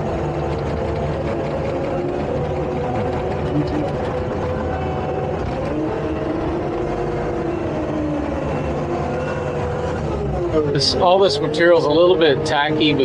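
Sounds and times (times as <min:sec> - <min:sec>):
diesel engine rumble and whine: 0:00.0 - 0:13.0.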